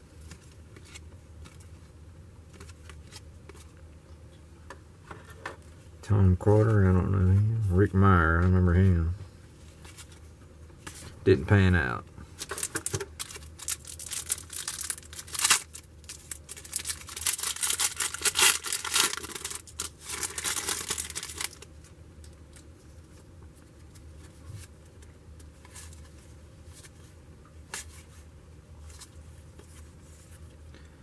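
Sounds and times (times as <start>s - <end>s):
cards being handled: 0.2s - 1.8s, 2.5s - 3.8s
wrapper tearing and crinkling: 12.4s - 21.7s.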